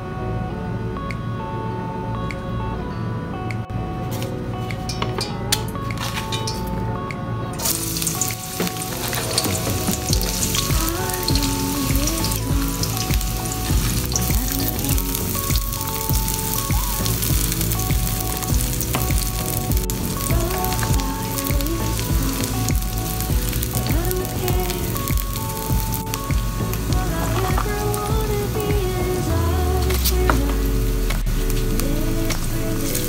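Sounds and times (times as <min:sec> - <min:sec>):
background music with melody: 0:00.0 - 0:33.0
onions sizzling in hot oil: 0:07.6 - 0:29.3.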